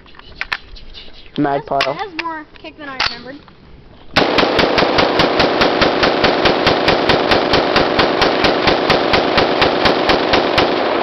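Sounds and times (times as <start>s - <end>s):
rapid rifle gunfire: 4.2s - 11.0s.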